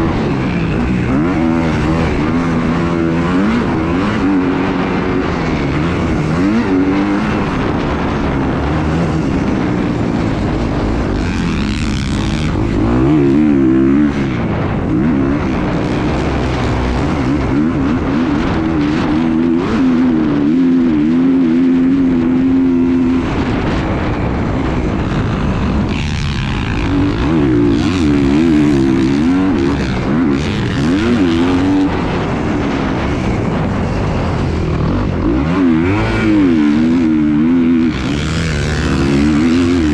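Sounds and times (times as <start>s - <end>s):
small engine running: 0.0s - 39.9s
steady rushing noise: 0.0s - 39.9s.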